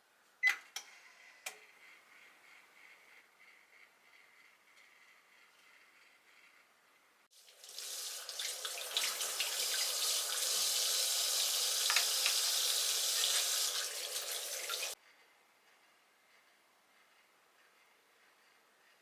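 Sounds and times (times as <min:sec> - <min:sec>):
tap running water into sink: 0:07.4 - 0:15.0.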